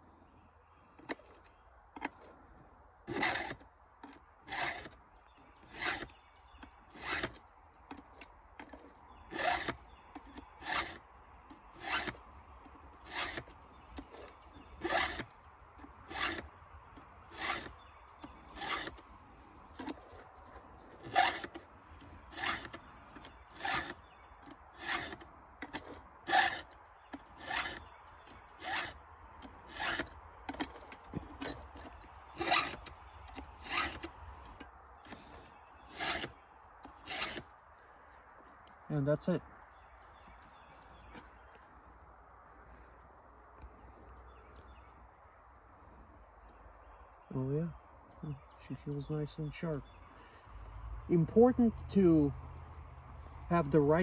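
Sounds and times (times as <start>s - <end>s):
file rasping on saw chain: 3.1s - 5.0s, 5.6s - 6.1s, 6.9s - 12.2s, 13.0s - 19.0s, 19.8s - 34.1s, 35.1s - 37.5s.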